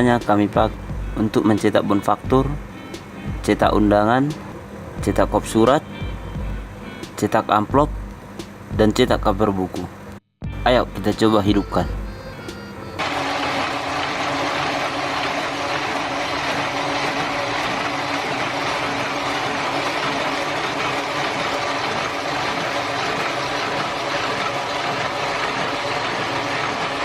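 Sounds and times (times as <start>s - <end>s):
printing press running: 12.9s - 27.0s.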